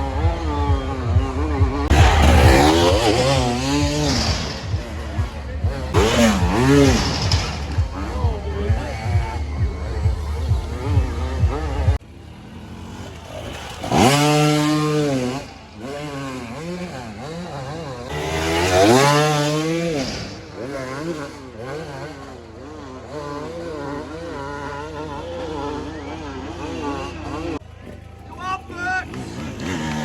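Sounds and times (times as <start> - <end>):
thumping music beat: 0.0 - 12.0
dirt bike engines revving: 0.0 - 30.0.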